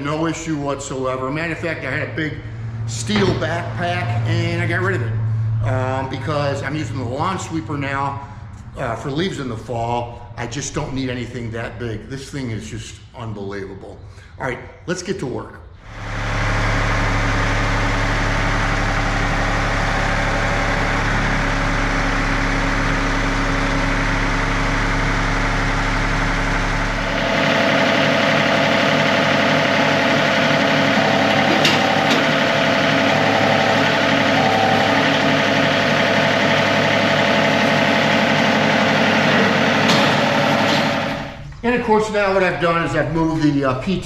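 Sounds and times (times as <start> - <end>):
tractor engine running: 15.8 - 41.5.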